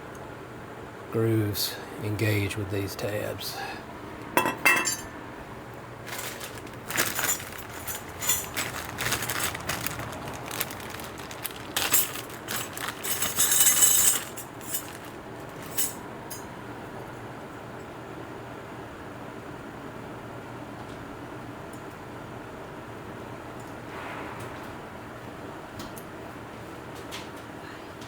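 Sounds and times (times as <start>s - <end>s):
metal on metal clinks and scrapes: 7.2s - 8.7s, 11.9s - 16.0s.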